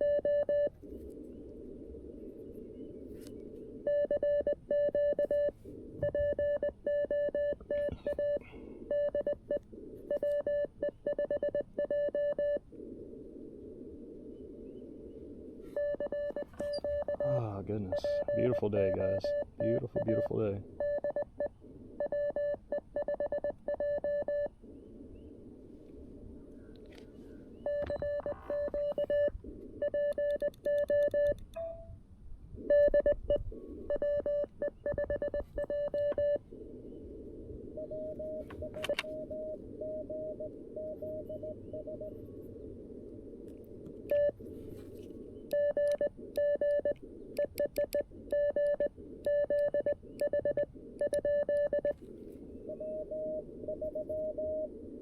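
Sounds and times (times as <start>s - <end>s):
faint higher-pitched morse code: 0.0s - 0.7s, 3.9s - 12.6s, 15.7s - 24.5s, 27.6s - 31.9s, 32.7s - 36.4s, 37.8s - 42.2s, 45.5s - 52.0s, 52.7s - 54.7s
radio band hiss: 0.0s - 22.9s, 23.6s - 30.2s, 40.4s - 53.7s
morse code tone: 15.8s - 24.5s, 33.9s - 36.4s, 37.8s - 42.1s, 45.5s - 52.0s, 52.7s - 54.7s.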